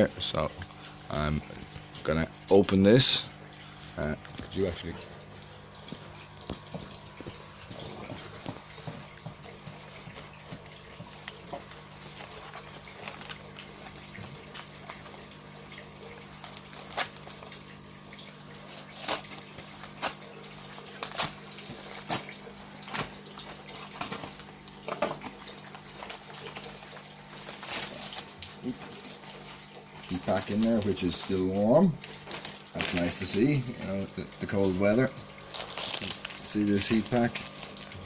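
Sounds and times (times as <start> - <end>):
cardboard ripping: 35.5 - 38.0
cardboard rustling and handling: 35.5 - 38.0.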